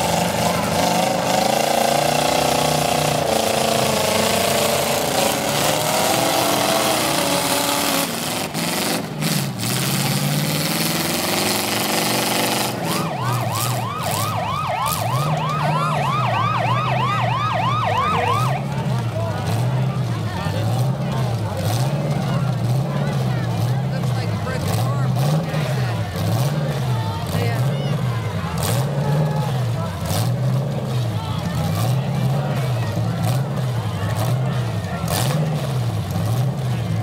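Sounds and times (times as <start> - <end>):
car engines revving unevenly: 0.0 - 37.0
siren yelping: 12.8 - 18.7.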